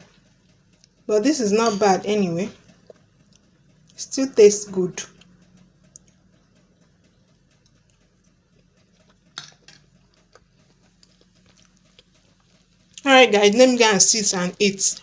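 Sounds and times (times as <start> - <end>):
tableware clicks: 9.4 - 9.9.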